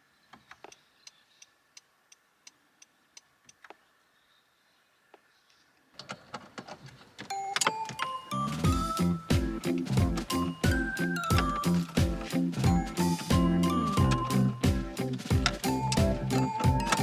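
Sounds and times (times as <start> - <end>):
faint regular ticking: 0.5 - 3.8.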